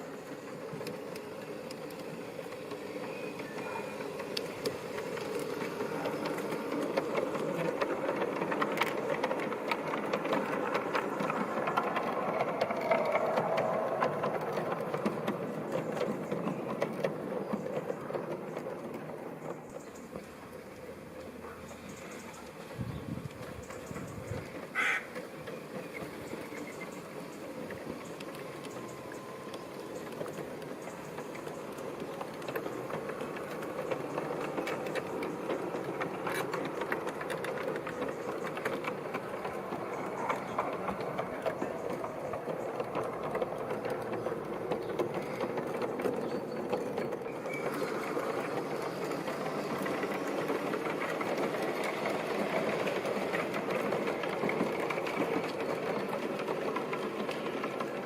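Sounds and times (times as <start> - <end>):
model train motor whirring: 0.0 - 18.4
wheel clicks over rails: 0.0 - 58.0.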